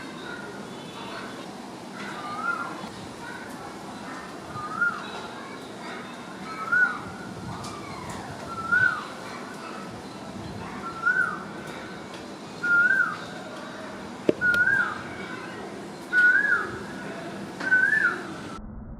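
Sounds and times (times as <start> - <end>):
bird whistling: 8.5 - 9.0, 10.8 - 11.4, 12.6 - 13.2, 14.4 - 15.0, 16.1 - 16.7, 17.6 - 18.3.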